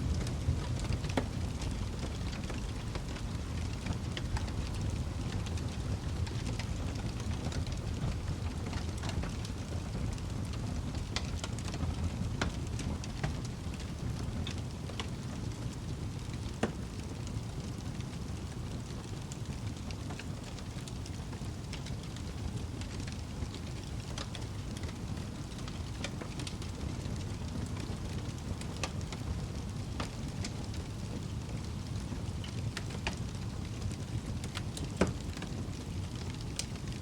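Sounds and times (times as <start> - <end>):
fire flames rumbling: 0.0 - 37.0
logs crackling and popping: 0.0 - 37.0.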